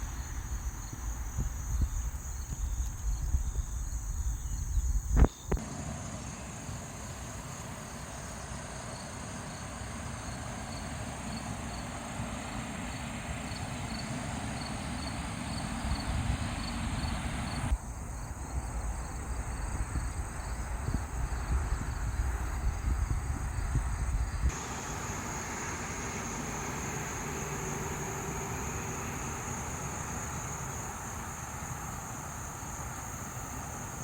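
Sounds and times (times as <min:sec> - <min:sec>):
crickets chirping: 0:00.0 - 0:34.0
low outdoor rumble: 0:00.0 - 0:34.0.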